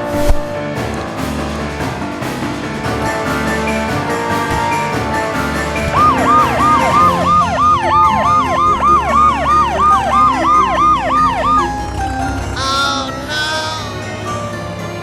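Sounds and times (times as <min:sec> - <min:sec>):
background music: 0:00.0 - 0:15.0
siren yelp: 0:05.8 - 0:12.0.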